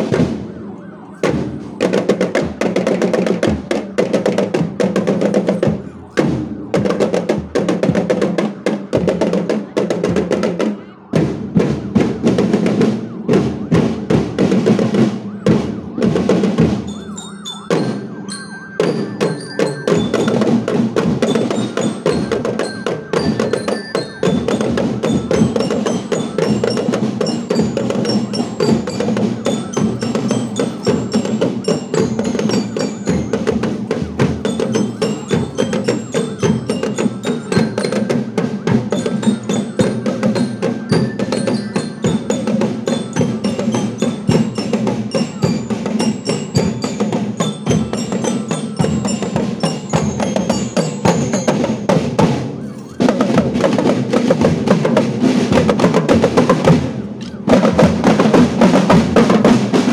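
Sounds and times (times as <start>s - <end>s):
fast marching drumming: 0.0s - 59.9s
glockenspiel notes: 16.0s - 55.5s.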